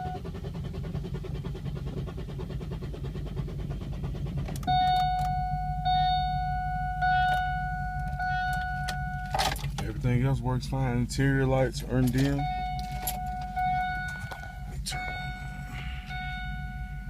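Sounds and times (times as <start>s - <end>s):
low steady hum: 0.0s - 17.0s
electronic warning tone: 4.6s - 9.5s, 11.9s - 17.0s.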